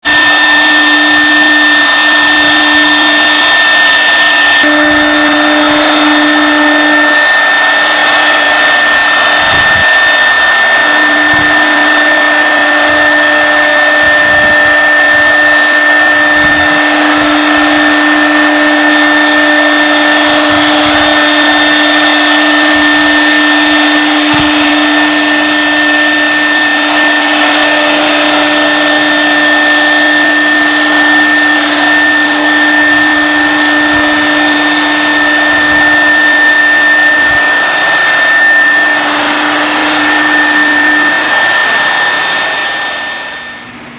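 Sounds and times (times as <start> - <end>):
router spindle whine: 0.0 - 43.9
mechanical hiss: 23.2 - 43.8.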